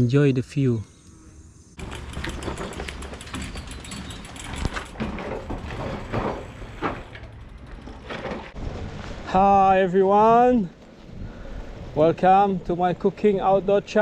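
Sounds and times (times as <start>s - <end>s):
bike hub ticking: 1.8s - 8.4s
tyre rumble: 1.8s - 9.4s.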